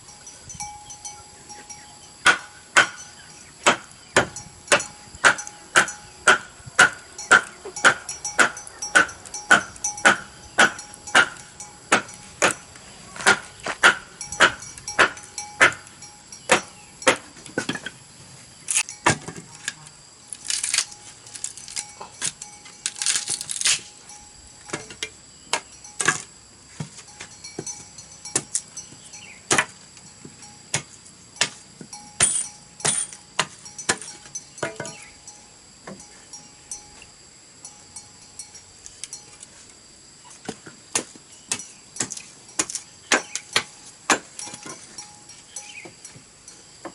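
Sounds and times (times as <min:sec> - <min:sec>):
scraping strokes on bamboo: 0:00.0 - 0:35.1
hand tool knocking bamboo: 0:01.6 - 0:18.0, 0:24.7 - 0:28.7, 0:29.5 - 0:35.1, 0:40.5 - 0:45.1.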